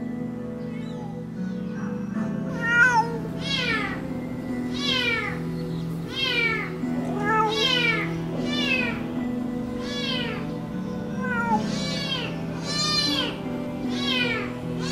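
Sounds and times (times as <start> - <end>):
background music: 0.0 - 14.9
cat meowing: 0.6 - 1.3, 2.5 - 4.0, 4.7 - 9.1, 9.7 - 14.9.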